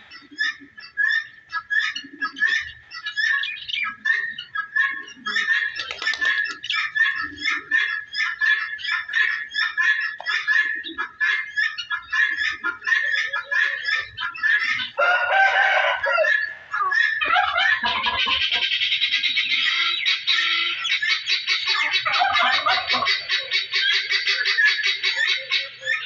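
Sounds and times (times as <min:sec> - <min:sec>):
flock of birds calling: 0:00.0 - 0:26.0
rooster crowing: 0:15.0 - 0:16.5.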